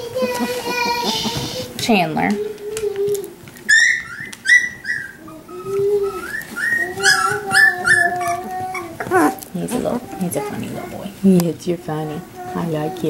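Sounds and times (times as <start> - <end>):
puppy whining: 2.7 - 11.0
puppies crying: 3.0 - 11.0.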